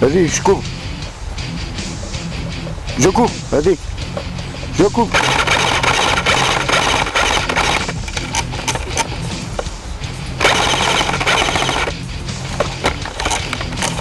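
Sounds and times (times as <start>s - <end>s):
background music: 0.0s - 14.0s
airsoft gunfire: 5.1s - 8.0s, 10.4s - 11.9s.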